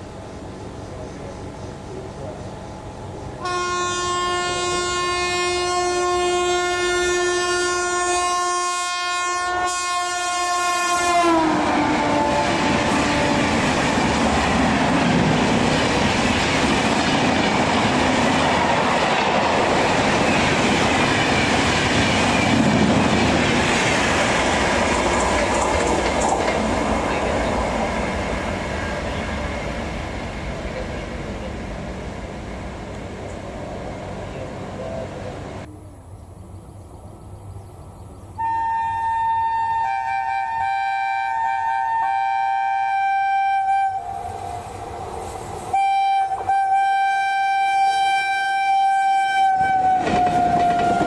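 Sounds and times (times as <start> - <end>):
locomotive horn blast: 3.4 - 14.6, 38.4 - 44.3, 45.7 - 51.0
train coaches clattering past: 11.1 - 35.7, 49.2 - 51.0.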